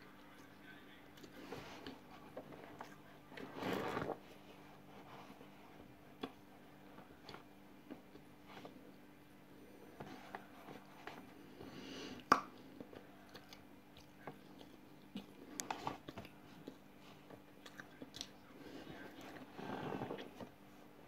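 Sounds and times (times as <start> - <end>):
person chewing: 12.1 - 19.5.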